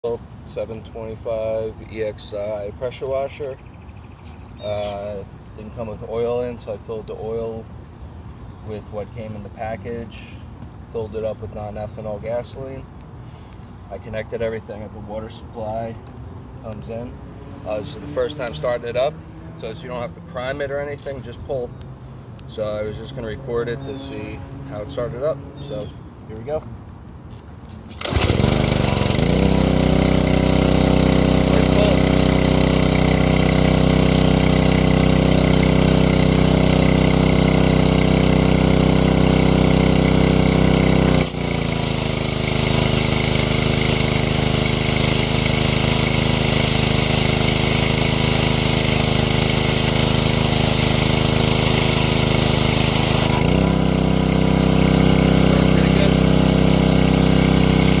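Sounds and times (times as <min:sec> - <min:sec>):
pressure washer engine running: 0:00.0 - 0:03.4, 0:04.6 - 0:07.6, 0:16.7 - 0:21.6, 0:27.9 - 0:58.0
pull start: 0:27.8 - 0:58.0.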